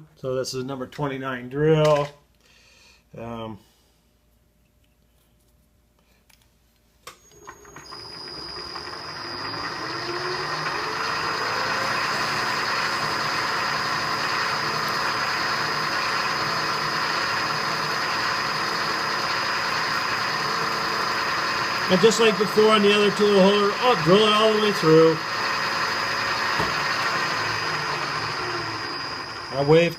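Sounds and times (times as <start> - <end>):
milling machine spindle whine: 7.3 - 29.9.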